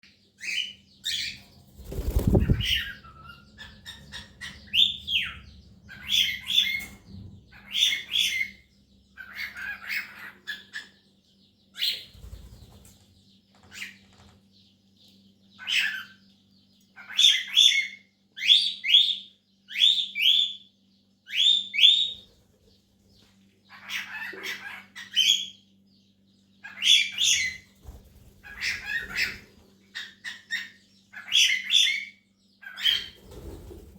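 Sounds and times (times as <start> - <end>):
cockatiels chirping: 0.4 - 11.1, 11.7 - 14.3, 15.5 - 16.3, 17.0 - 20.7, 23.7 - 25.6, 26.6 - 33.9.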